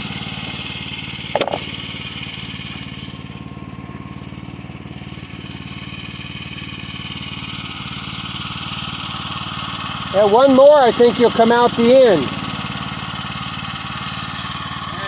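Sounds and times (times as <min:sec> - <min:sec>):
band saw blade sawing log: 0:00.0 - 0:03.4, 0:09.8 - 0:12.8
small gas engine running: 0:00.0 - 0:15.0.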